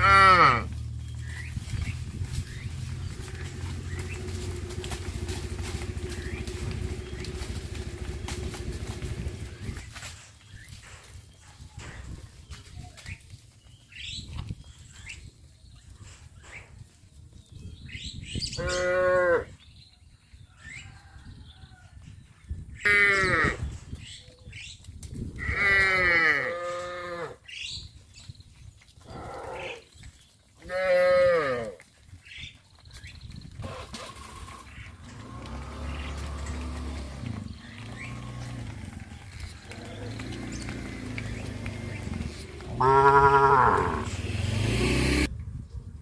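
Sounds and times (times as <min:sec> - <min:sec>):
cattle mooing: 0:00.0 - 0:00.8, 0:35.0 - 0:39.0, 0:39.7 - 0:45.3.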